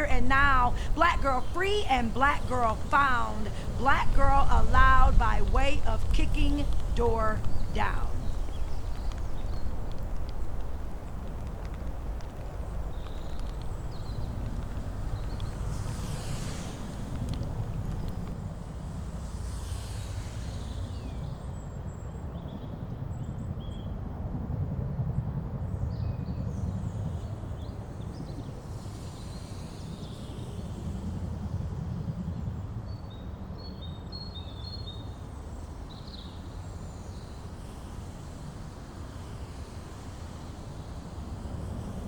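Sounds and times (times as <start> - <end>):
low rumble: 0.0 - 19.4.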